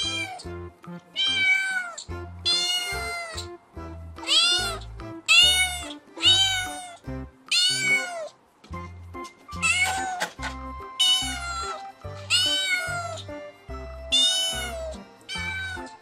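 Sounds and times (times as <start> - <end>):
cat meowing: 0.0 - 0.5, 1.1 - 3.5, 4.2 - 8.4, 9.6 - 13.3, 14.1 - 16.0
background music with bass line: 8.7 - 16.0.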